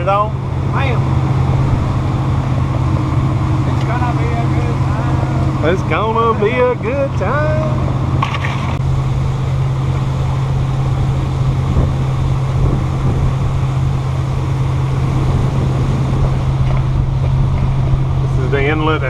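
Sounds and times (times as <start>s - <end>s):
boat engines droning: 0.0s - 19.0s
water rushing past hull: 0.0s - 19.0s
wind buffeting microphone: 0.0s - 19.0s.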